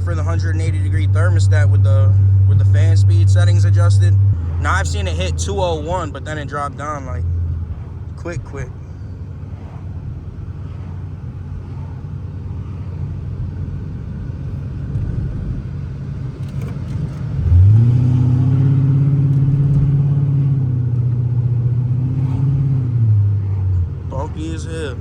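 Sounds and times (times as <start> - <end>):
car engine droning: 0.0 - 25.0
road rumble inside car: 0.0 - 25.0.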